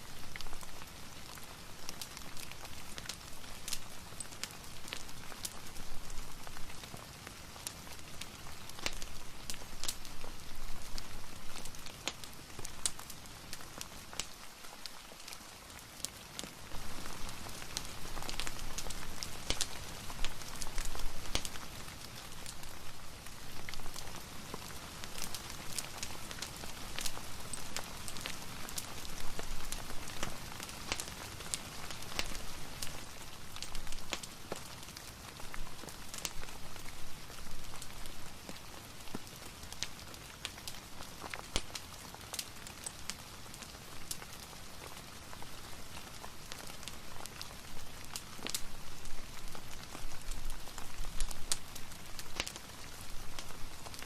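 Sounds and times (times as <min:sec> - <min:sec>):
fireplace crackling and popping: 0:00.0 - 0:54.0
rain hissing: 0:16.3 - 0:40.1.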